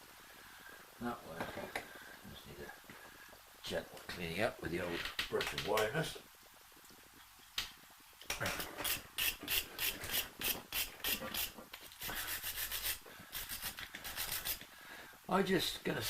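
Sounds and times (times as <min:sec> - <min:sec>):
wire brush scrubbing metal: 0:08.6 - 0:14.6.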